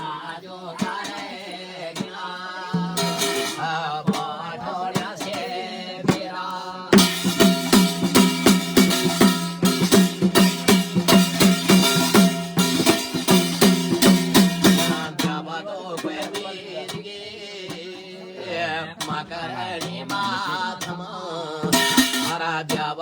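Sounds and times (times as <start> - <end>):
man singing: 0.0 - 8.6, 14.4 - 23.0
drums beating: 0.0 - 23.0.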